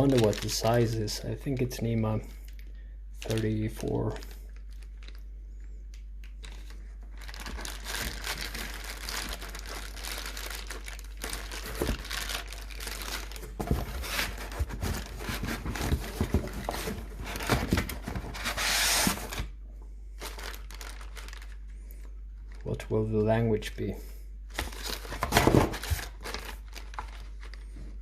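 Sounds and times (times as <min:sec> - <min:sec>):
packaging crinkling: 0:00.0 - 0:05.3, 0:05.9 - 0:19.6, 0:20.2 - 0:22.8, 0:24.5 - 0:27.8
packaging tearing: 0:06.4 - 0:19.5, 0:20.2 - 0:21.6, 0:24.5 - 0:27.6.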